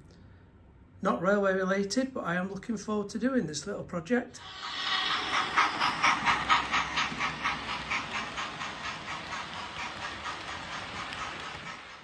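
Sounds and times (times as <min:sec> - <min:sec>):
steady steam hiss: 0:04.4 - 0:12.0
steam locomotive chuffing: 0:04.4 - 0:12.0.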